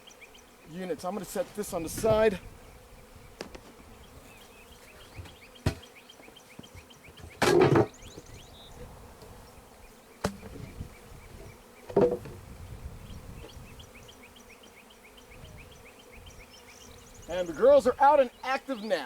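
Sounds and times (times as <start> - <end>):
bees buzzing: 0.0 - 19.0
wooden hive equipment knocking: 5.1 - 5.9, 6.6 - 8.3, 10.2 - 10.8, 11.9 - 12.4.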